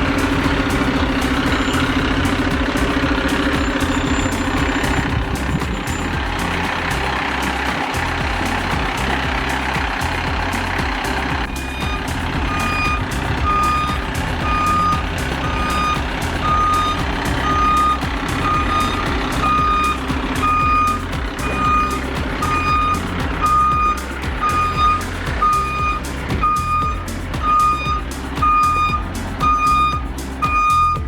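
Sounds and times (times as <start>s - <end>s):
truck backup alarm beeping: 11.5s - 31.0s.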